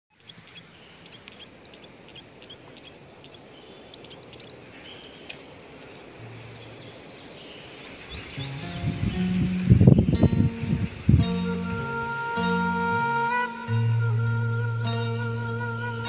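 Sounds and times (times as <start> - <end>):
young bird chirping: 0.1 - 5.4.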